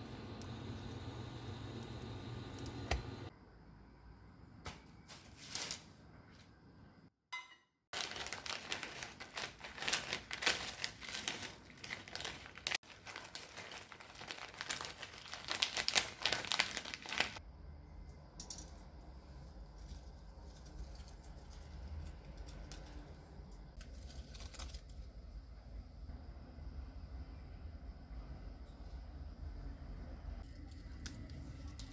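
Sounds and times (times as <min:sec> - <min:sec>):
material crinkling and rustling: 0:08.0 - 0:17.4.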